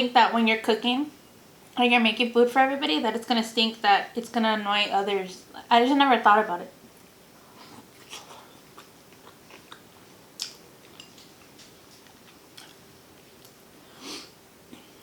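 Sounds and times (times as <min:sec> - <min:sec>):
faint steady hum: 0:00.0 - 0:15.0
wet mouth sound: 0:07.6 - 0:11.3
person chewing and biting: 0:07.6 - 0:13.6
small mouth clicks: 0:08.0 - 0:11.3.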